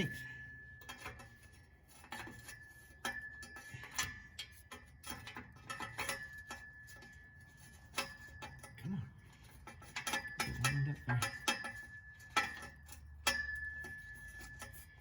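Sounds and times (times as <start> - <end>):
faint steady high tone: 0.0 - 1.6.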